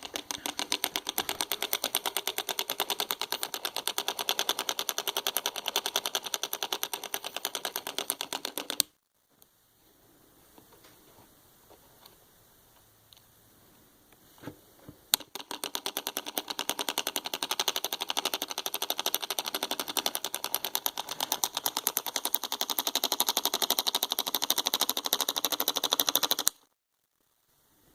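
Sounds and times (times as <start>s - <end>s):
solenoid engine clicking: 0.0s - 8.9s, 15.1s - 26.8s.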